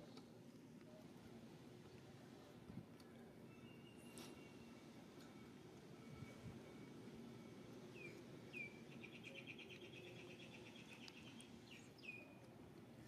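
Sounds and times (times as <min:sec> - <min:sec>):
faint bird chirps: 0:03.4 - 0:04.8.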